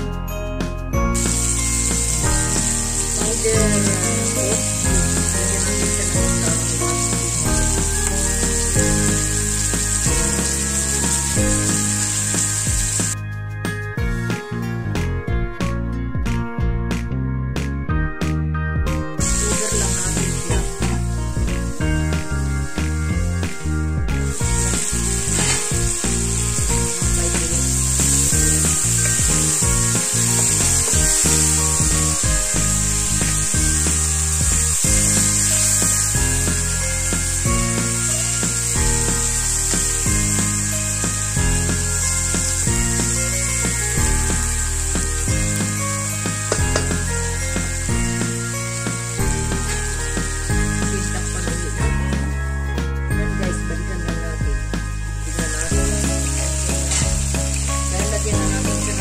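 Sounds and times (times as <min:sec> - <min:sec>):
background music: 0:00.0 - 0:59.0
chicken and onion sizzling in oil: 0:01.1 - 0:13.2, 0:19.2 - 0:52.3, 0:53.4 - 0:59.0
wooden spatula scraping wok: 0:24.6 - 0:45.7.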